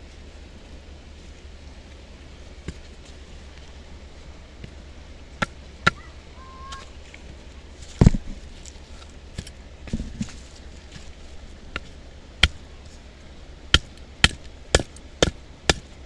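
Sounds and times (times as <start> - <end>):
firewood chopping knocks: 8.0 - 8.3, 11.8 - 12.6, 13.7 - 15.9.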